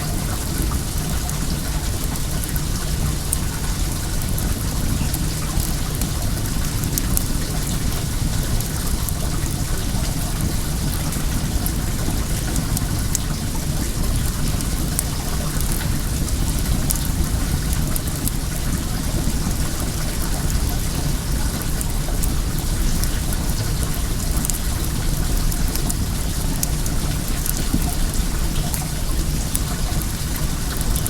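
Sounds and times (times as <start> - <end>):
bonfire crackling: 0.0 - 31.0
running water: 0.0 - 31.0.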